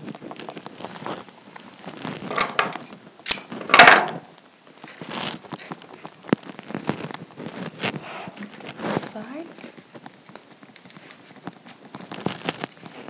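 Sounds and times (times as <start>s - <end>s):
rustling of floral materials: 0.0s - 13.0s
clinks and knocks on tin: 2.3s - 4.2s.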